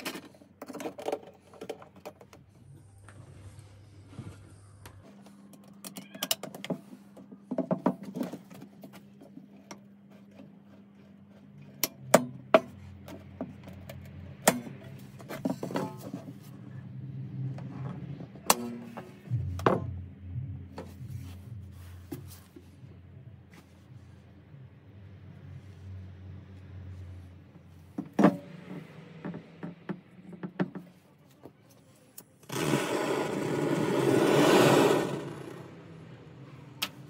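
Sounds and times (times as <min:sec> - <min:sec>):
hard parts clicking and knocking: 0:00.0 - 0:02.6, 0:27.9 - 0:31.0
low steady hum: 0:00.0 - 0:29.4.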